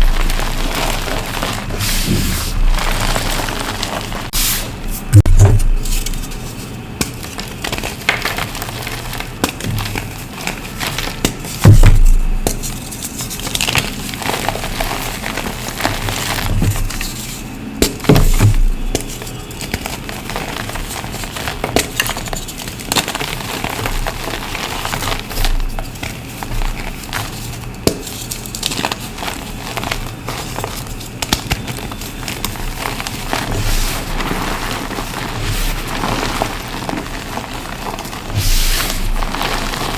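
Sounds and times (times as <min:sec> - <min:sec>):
chalk crumbling and crunching: 0:00.0 - 0:39.9
heavy low thump: 0:05.1 - 0:05.9.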